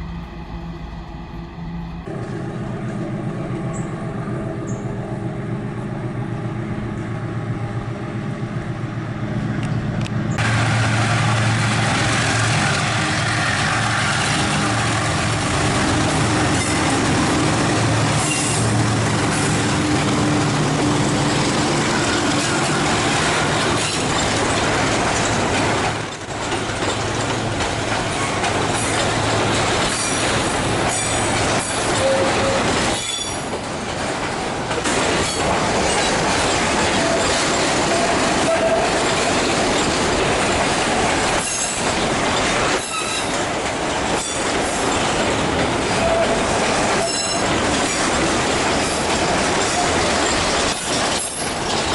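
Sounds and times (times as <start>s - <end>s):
diesel locomotive hum: 0.0s - 51.9s
train wagons clattering over rails: 9.6s - 51.9s
wheel squeals: 29.8s - 33.5s, 42.7s - 43.4s, 46.0s - 48.0s.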